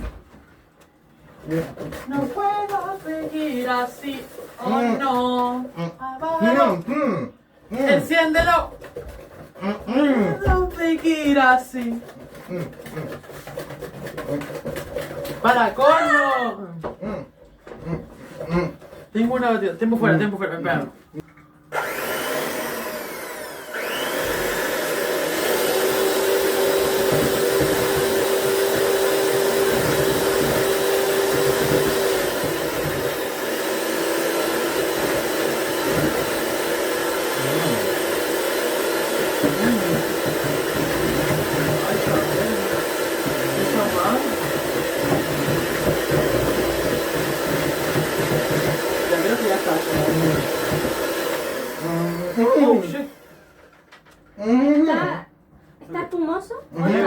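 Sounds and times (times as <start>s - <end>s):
electric mixer humming: 21.7s - 53.7s.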